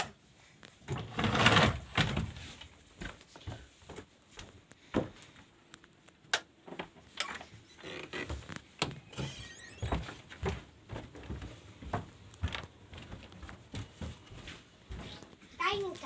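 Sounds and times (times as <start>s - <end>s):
wooden door shutting: 7.2s - 10.2s.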